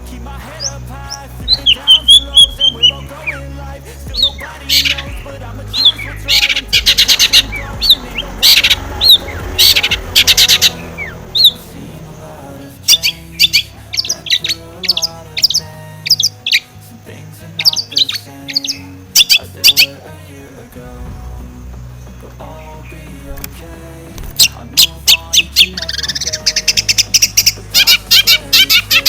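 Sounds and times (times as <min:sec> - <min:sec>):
soft background music: 0:00.0 - 0:29.0
bird chirping and chattering: 0:00.5 - 0:03.4, 0:04.0 - 0:12.3, 0:12.9 - 0:16.8, 0:17.6 - 0:20.0, 0:24.4 - 0:29.0.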